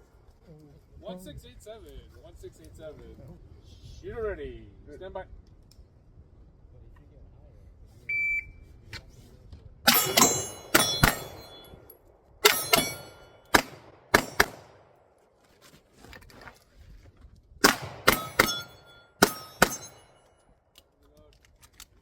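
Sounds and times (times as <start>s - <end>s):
pistol shots: 9.9s - 11.7s, 12.4s - 15.1s, 17.6s - 20.2s
steel targets ringing: 9.9s - 14.6s, 17.7s - 20.4s.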